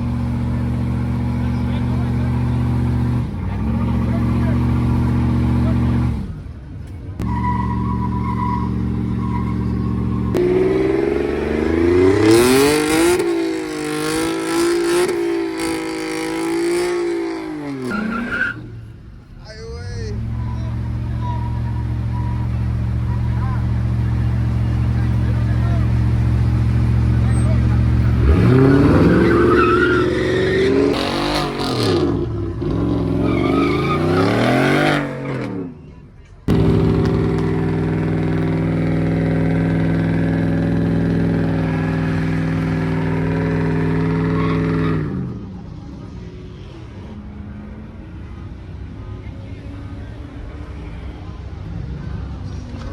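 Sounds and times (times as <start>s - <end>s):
vehicle engine revving: 0.0s - 6.6s, 7.2s - 18.9s, 20.1s - 46.1s
spinning tyres hissing: 7.2s - 19.0s, 20.1s - 35.4s, 36.5s - 45.2s.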